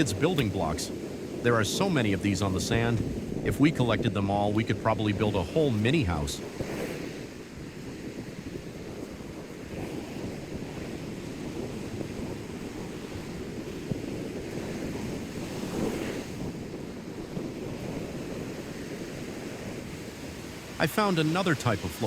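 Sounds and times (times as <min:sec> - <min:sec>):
ocean surf washing on shore: 0:00.0 - 0:22.0
wind buffeting microphone: 0:00.0 - 0:22.0.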